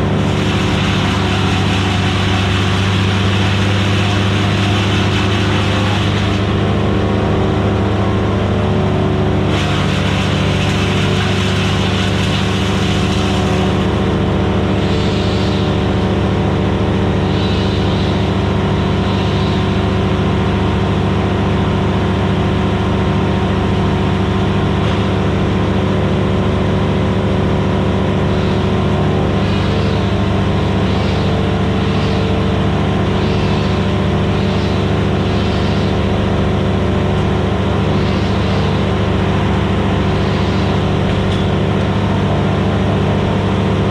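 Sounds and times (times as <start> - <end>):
hissing rush: 0.0 - 6.6
wood chipper engine running: 0.0 - 43.9.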